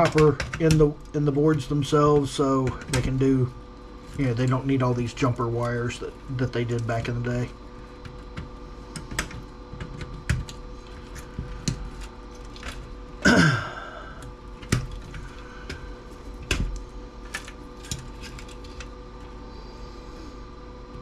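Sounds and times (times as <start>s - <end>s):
faint steady hum: 0.0s - 21.0s
clicks and snaps of parts: 16.4s - 18.9s.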